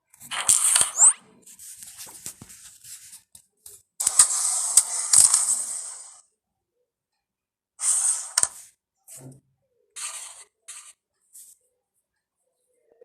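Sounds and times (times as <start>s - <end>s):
carrom pieces sliding: 0.2s - 3.4s, 4.0s - 6.2s.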